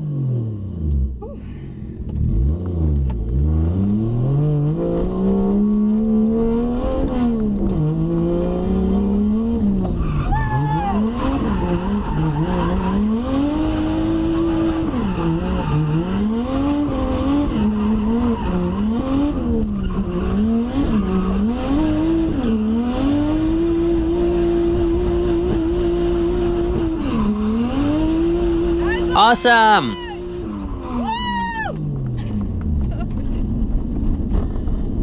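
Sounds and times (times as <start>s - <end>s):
car engine revving hard: 11.0s - 29.2s.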